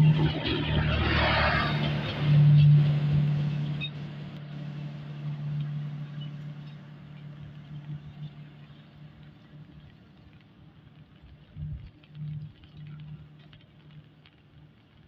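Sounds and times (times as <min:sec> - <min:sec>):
train engine drone: 0:00.0 - 0:10.8.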